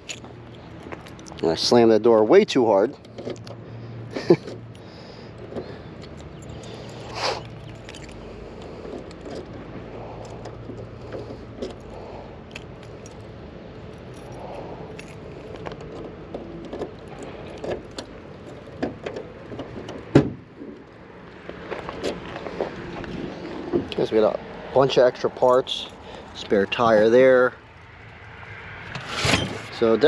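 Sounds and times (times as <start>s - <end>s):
car keys jangling: 0.0s - 1.4s, 4.3s - 20.0s.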